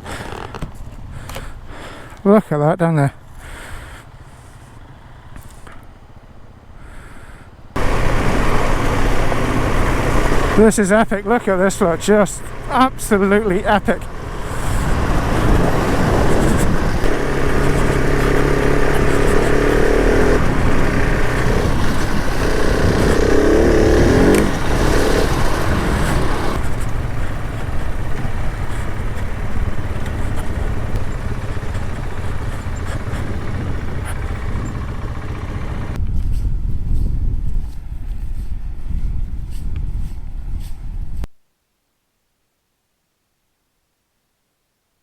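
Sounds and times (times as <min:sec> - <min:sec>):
rumble of wind and tyres: 0:00.0 - 0:41.4
motorcycle engine: 0:07.8 - 0:36.0.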